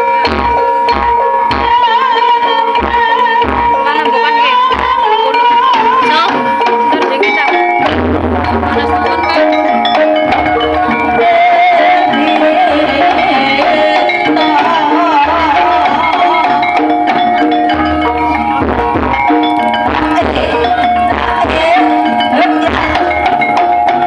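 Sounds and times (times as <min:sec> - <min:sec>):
ringing metallophone tones: 0:00.0 - 0:24.0
wavering melodic line: 0:00.0 - 0:24.0
low drum beat: 0:02.8 - 0:24.0.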